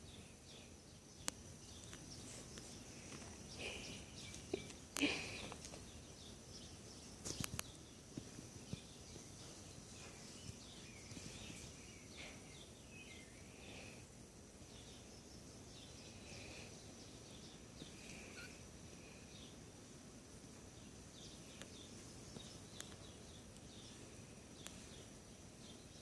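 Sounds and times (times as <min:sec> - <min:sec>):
kittens mewing: 0:18.0 - 0:18.7.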